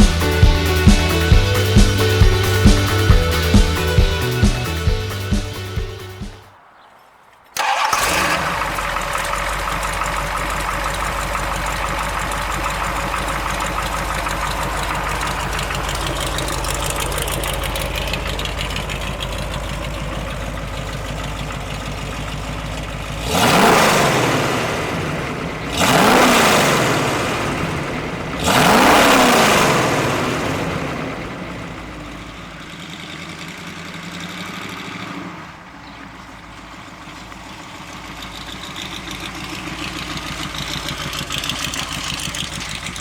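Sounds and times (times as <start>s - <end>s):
engine revving: 0.0s - 6.5s, 7.6s - 32.0s
engine starting and idling: 7.6s - 35.1s, 36.3s - 43.0s.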